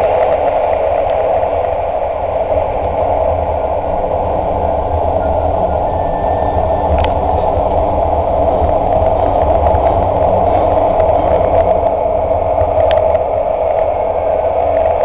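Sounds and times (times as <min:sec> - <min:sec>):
deep low drone: 0:00.0 - 0:15.0
train wheels rumbling on rail: 0:00.0 - 0:15.0.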